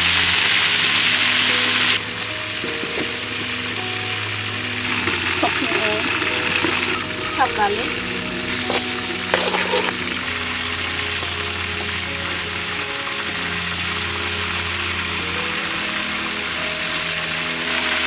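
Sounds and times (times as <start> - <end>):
chicken sizzling in hot oil: 0.0 - 18.0
metal spatula scraping wok: 7.9 - 10.3.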